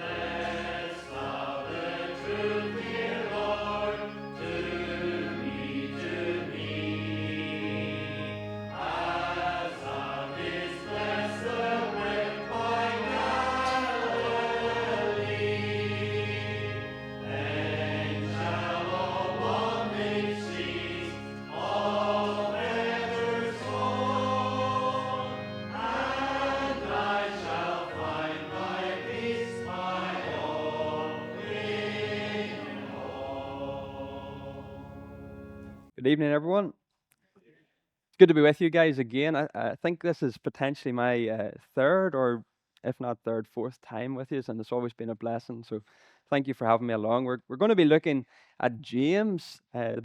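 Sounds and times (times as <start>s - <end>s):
congregation singing a hymn: 0.0s - 35.8s
instrumental accompaniment low notes: 0.0s - 35.8s.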